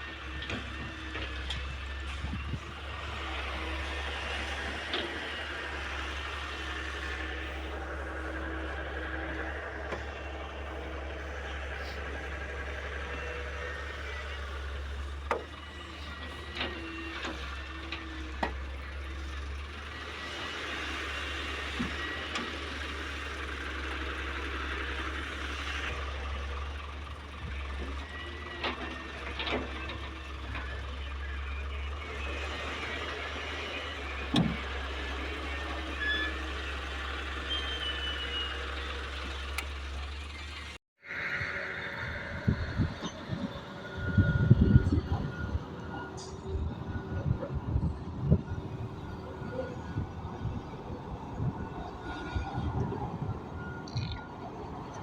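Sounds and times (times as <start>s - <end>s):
heavy diesel machinery humming: 0.0s - 55.0s.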